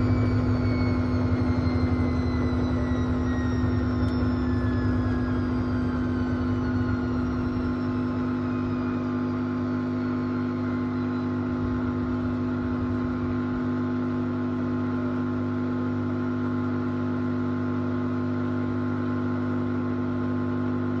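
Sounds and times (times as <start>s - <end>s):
washing machine drum spinning down: 0.0s - 14.8s
steady hum: 0.0s - 15.5s.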